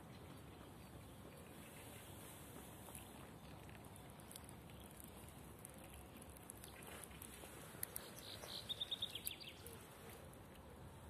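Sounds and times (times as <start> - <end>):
small bird chirping: 7.8 - 9.9.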